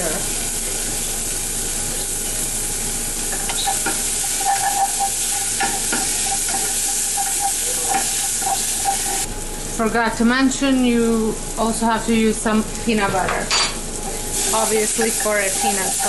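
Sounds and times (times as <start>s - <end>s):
vegetables sizzling in oil: 0.0s - 16.0s
utensil stirring pot: 3.2s - 9.3s, 14.0s - 16.0s.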